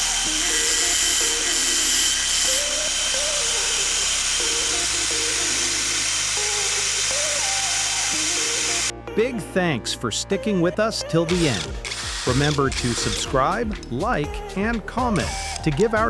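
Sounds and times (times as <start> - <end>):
small power tool whining: 0.0 - 8.9, 11.3 - 13.9, 15.1 - 15.9
light background melody: 0.0 - 16.0.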